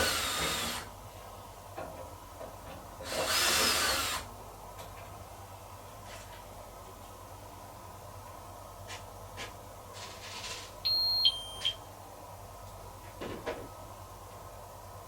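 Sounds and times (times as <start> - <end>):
two-tone electronic beep: 10.9 - 11.8.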